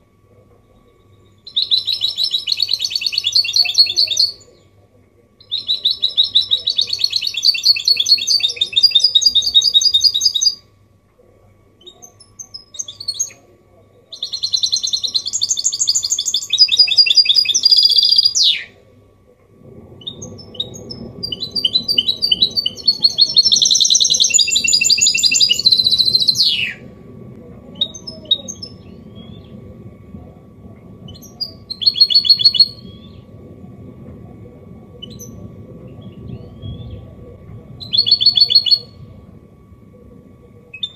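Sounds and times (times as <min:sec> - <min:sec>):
low steady background noise: 0:00.0 - 0:40.9
finch singing trilling song: 0:01.4 - 0:04.4, 0:05.4 - 0:10.6, 0:14.1 - 0:18.7, 0:20.0 - 0:26.8.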